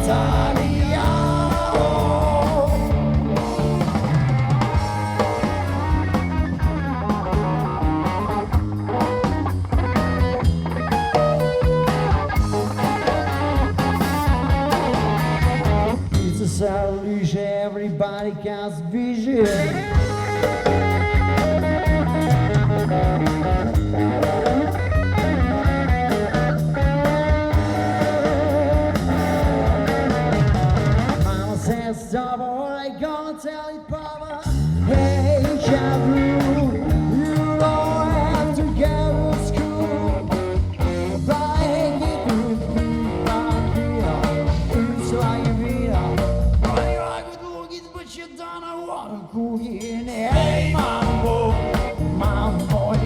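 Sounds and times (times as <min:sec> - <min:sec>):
person singing: 0:00.0 - 0:04.1, 0:27.6 - 0:48.3, 0:48.9 - 0:53.0
rock band playing: 0:00.0 - 0:17.0, 0:19.4 - 0:32.1, 0:34.4 - 0:47.4, 0:50.1 - 0:53.0
drum kit: 0:00.0 - 0:17.1, 0:19.4 - 0:32.0, 0:34.4 - 0:47.4, 0:49.6 - 0:53.0
electric guitar: 0:00.0 - 0:17.5, 0:19.3 - 0:33.0, 0:33.8 - 0:48.1, 0:49.8 - 0:53.0.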